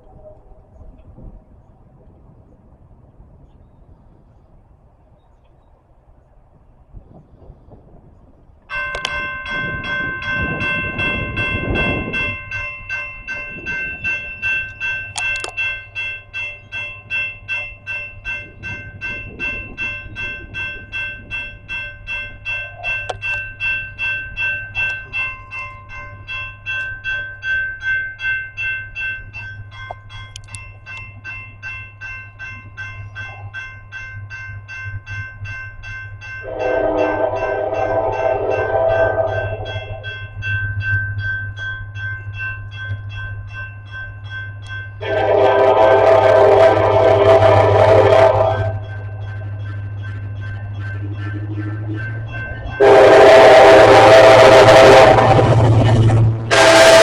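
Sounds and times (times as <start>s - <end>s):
train engine rumble: 0.0s - 57.0s
railroad bell ringing: 8.7s - 57.0s
train horn blowing: 36.4s - 40.3s, 45.0s - 57.0s.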